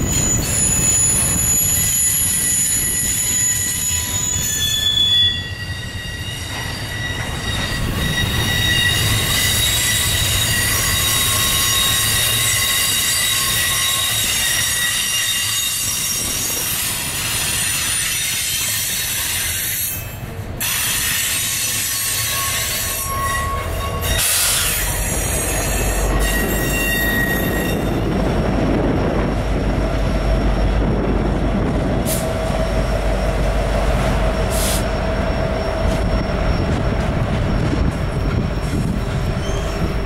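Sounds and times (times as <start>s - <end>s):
wheels squealing: 0.0s - 28.3s, 32.2s - 40.0s
diesel locomotive engine rumble: 0.0s - 40.0s.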